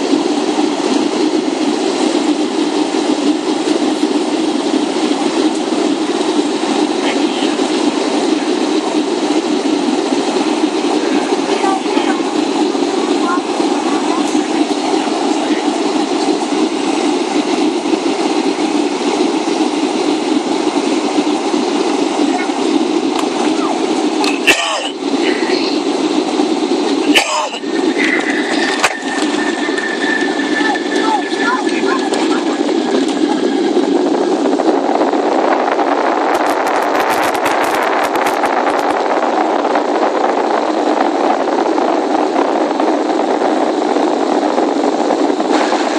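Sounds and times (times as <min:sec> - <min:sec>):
airplane cabin rumble: 0:00.0 - 0:45.9.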